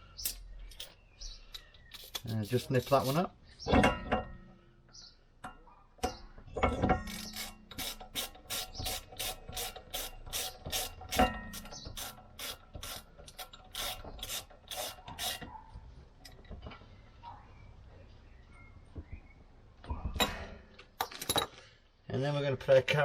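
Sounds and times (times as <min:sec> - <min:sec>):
metal tools clinking: 0:00.2 - 0:02.3, 0:20.2 - 0:21.6
ratchet clicking: 0:07.1 - 0:15.4.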